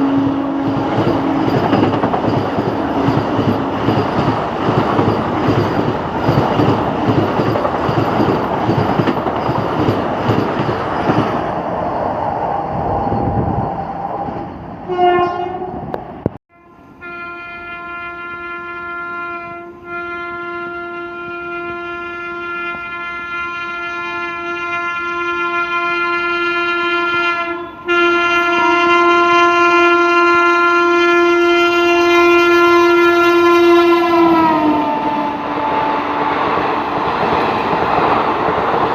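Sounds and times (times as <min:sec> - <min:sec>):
train horn: 0:00.0 - 0:03.9, 0:14.9 - 0:15.9, 0:16.5 - 0:36.7
train wheels clattering: 0:00.6 - 0:11.5.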